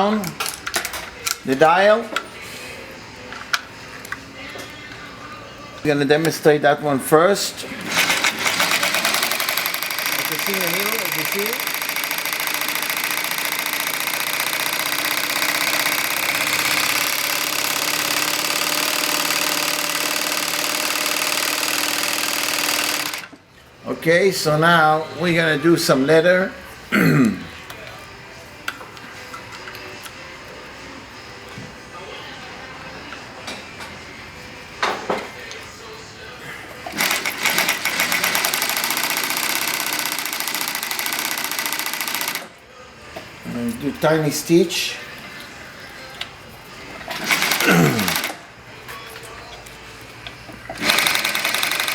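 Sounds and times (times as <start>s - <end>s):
sewing machine running: 7.7s - 23.3s, 36.9s - 42.6s, 47.0s - 48.4s, 50.7s - 51.9s.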